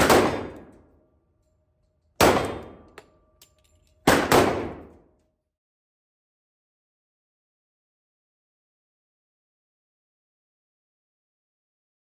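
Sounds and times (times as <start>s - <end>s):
pistol shots echoing indoors: 0.0s - 5.2s.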